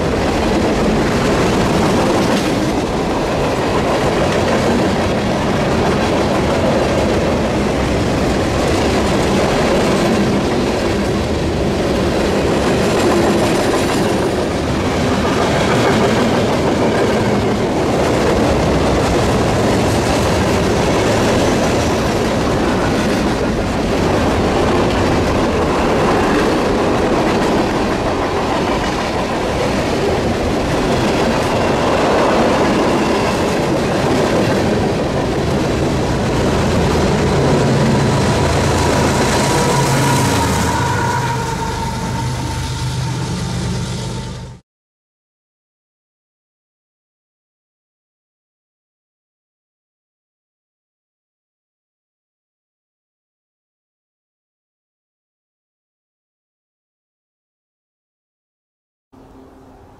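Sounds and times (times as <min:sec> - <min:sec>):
freight train wheels on rail: 0:00.0 - 0:44.6.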